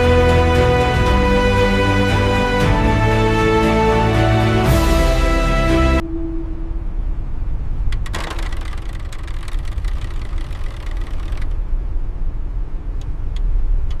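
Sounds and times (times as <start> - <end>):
deep rumble: 0.0 - 12.8
crackling and clicking: 7.9 - 11.6.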